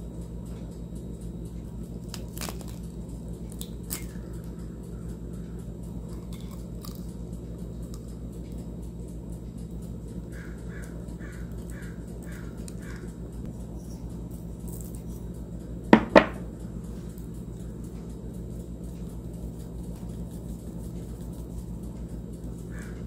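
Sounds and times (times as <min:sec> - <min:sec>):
low steady hum: 0:00.0 - 0:23.0
bird calling: 0:10.3 - 0:13.2.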